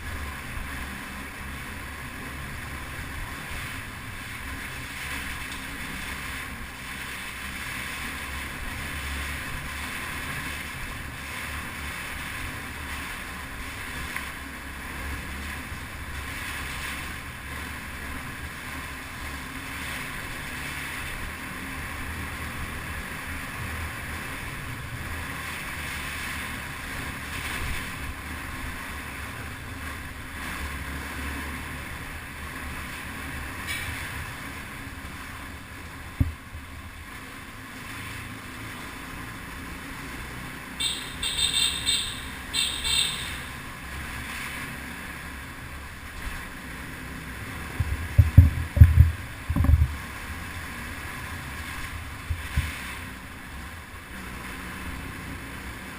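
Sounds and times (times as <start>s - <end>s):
dirt bike engine running: 40.7s - 44.1s
wind noise on microphone: 47.6s - 50.2s, 51.6s - 53.0s.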